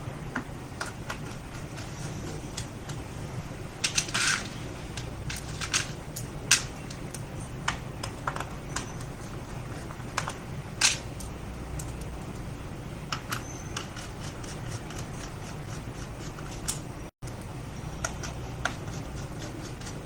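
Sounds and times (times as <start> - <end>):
steady low hum: 0.0 - 20.0
hands clicking and tapping parts: 3.8 - 12.5, 13.1 - 20.0.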